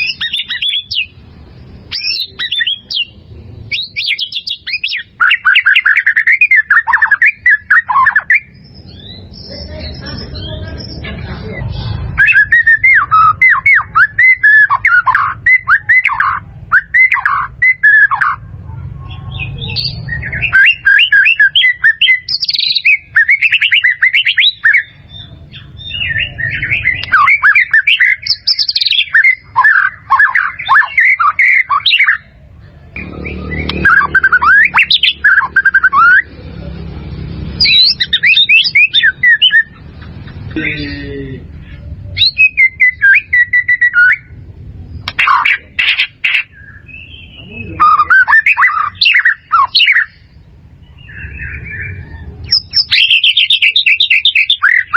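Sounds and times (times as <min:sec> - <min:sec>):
bird singing whistles: 0:00.0 - 0:01.1, 0:01.9 - 0:03.1, 0:03.7 - 0:09.6, 0:12.1 - 0:18.4, 0:19.3 - 0:36.3, 0:37.6 - 0:39.8, 0:42.1 - 0:44.4, 0:45.0 - 0:50.3, 0:50.9 - 0:54.9
low background rumble: 0:23.9 - 0:48.1, 0:48.7 - 0:53.7.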